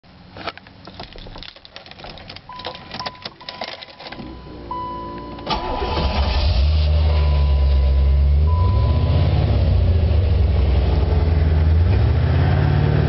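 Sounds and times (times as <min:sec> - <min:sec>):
car warning chime: 0:02.5 - 0:09.5
deep engine exhaust rumble: 0:04.2 - 0:13.0
engine cranking whir: 0:05.4 - 0:08.6.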